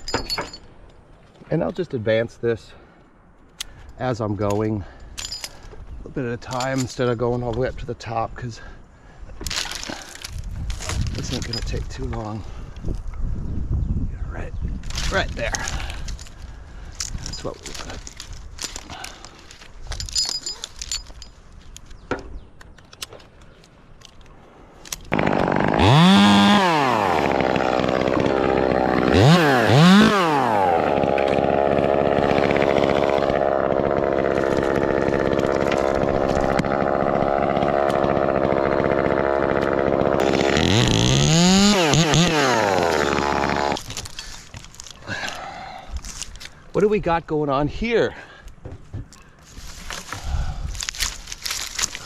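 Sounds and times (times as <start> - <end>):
chainsaw revving: 25.1 - 43.9.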